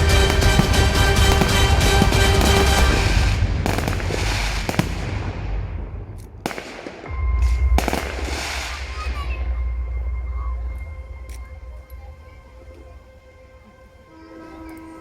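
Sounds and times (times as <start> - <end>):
fireworks bursting: 0.0 - 11.1
music: 0.0 - 15.0
held musical note: 8.9 - 15.0.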